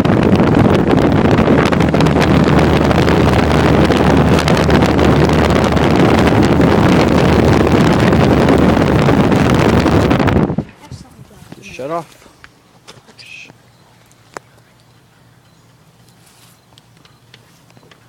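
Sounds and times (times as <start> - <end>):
air conditioner fan rushing: 0.0 - 10.8
steady low hum: 0.0 - 18.0.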